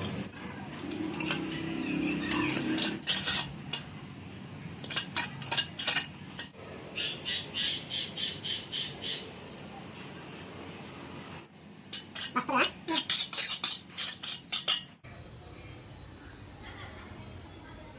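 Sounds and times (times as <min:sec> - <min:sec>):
metal tool scraping on floor: 0:01.1 - 0:04.0, 0:11.9 - 0:15.0.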